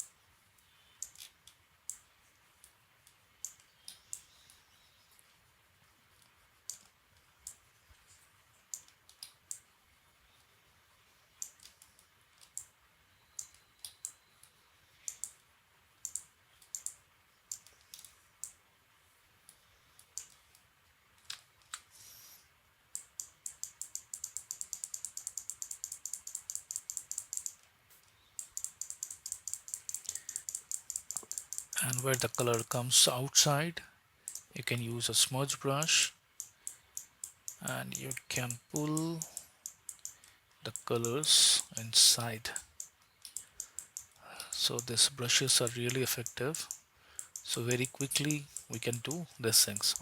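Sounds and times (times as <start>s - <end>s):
computer mouse clicking: 8.7s - 9.6s, 11.4s - 12.7s, 13.4s - 15.4s, 16.0s - 18.6s, 19.5s - 20.6s, 22.9s - 32.6s, 34.3s - 34.5s, 36.4s - 41.8s, 42.6s - 44.9s
scroll wheel ticking: 15.0s - 15.4s, 16.0s - 18.6s, 22.9s - 27.6s, 28.3s - 32.8s, 34.3s - 34.6s, 35.8s - 50.0s.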